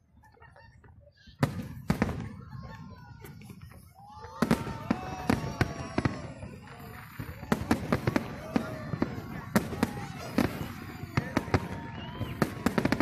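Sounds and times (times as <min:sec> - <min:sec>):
fireworks bangs: 0:00.9 - 0:13.0.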